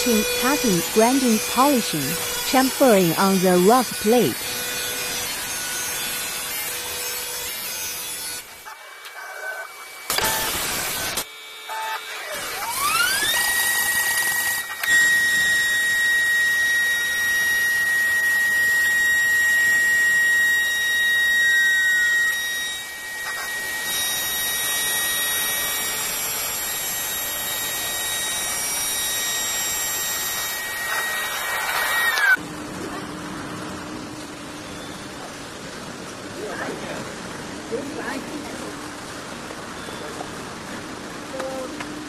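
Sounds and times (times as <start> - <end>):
machine spindle whining: 8.9 - 32.4.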